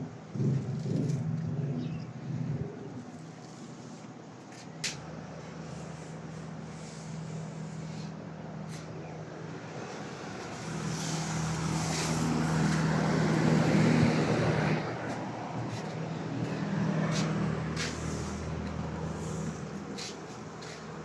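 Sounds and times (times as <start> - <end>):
motor engine humming: 5.0 - 21.0.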